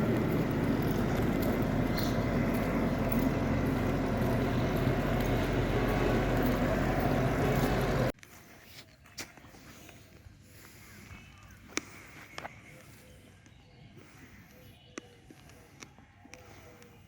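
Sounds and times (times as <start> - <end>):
vehicle engine running: 0.0 - 8.2
road noise: 0.0 - 17.0.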